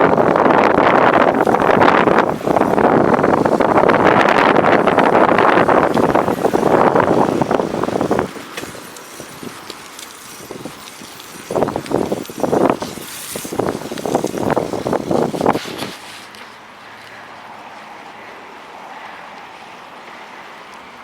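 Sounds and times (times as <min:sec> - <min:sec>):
strong wind gusting over microphone: 0:00.0 - 0:16.1.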